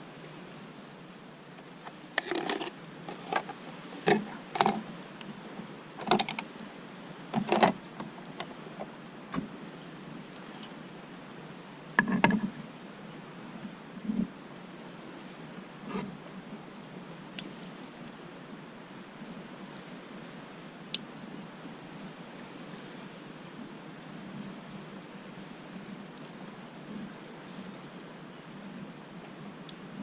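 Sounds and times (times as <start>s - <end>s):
handling knocks and clicks: 1.6s - 4.8s, 6.0s - 6.5s, 7.3s - 9.5s, 12.0s - 12.5s.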